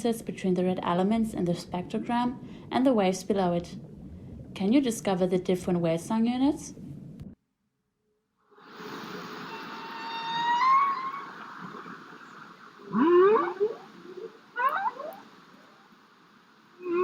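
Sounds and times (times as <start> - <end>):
underwater hiss: 8.6 - 17.0
humpback whale song: 8.7 - 17.0.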